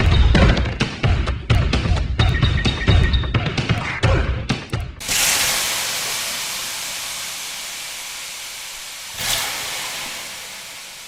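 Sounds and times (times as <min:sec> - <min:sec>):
hissing whoosh: 0:09.1 - 0:11.0.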